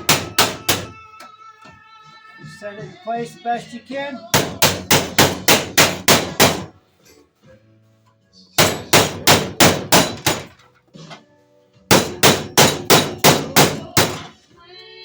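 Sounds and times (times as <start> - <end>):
hammer striking sheet metal: 0.0 - 0.9, 4.4 - 6.7, 8.6 - 10.6, 11.9 - 14.3.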